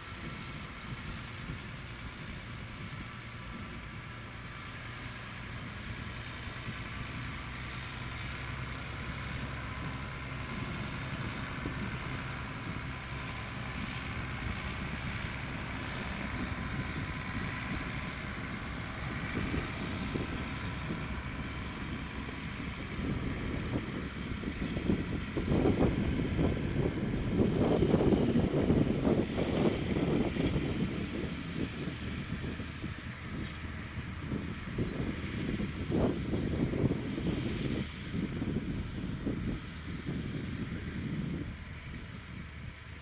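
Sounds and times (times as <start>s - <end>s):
vehicle engine humming: 0.0s - 43.0s
wind on microphone: 8.4s - 43.0s.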